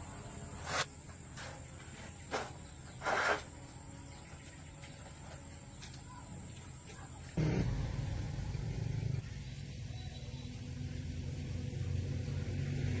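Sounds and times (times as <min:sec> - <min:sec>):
truck engine low rumble: 0:07.3 - 0:13.0.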